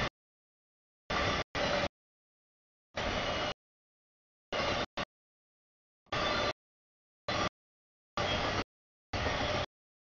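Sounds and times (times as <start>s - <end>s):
freight train wheel and rail noise: 1.1s - 1.9s, 3.0s - 3.6s, 4.5s - 5.1s, 6.1s - 6.6s, 7.3s - 7.5s, 8.2s - 9.7s.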